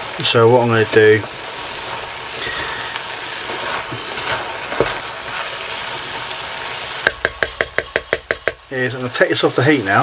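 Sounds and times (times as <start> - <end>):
mince and vegetables sizzling: 0.0 - 10.0
wooden spoon stirring and scraping: 0.2 - 6.4
spoon knocking on pan: 7.0 - 8.7.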